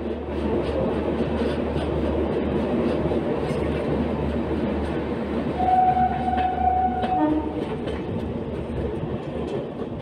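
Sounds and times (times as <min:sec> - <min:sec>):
rumble of train coaches and wheels: 0:00.0 - 0:10.0
train horn: 0:05.6 - 0:07.7
wheels clicking over rail joints: 0:05.8 - 0:10.0.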